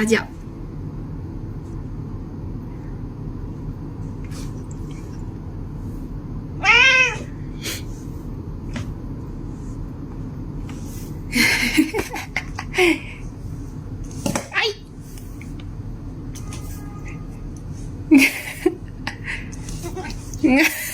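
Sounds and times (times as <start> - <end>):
low background hum: 0.0 - 20.9
cat meowing: 6.6 - 7.4.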